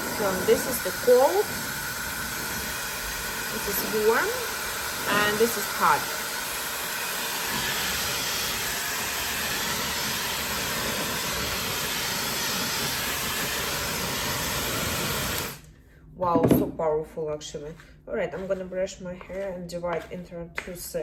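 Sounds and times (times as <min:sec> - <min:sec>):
hair dryer blowing: 0:00.0 - 0:15.7.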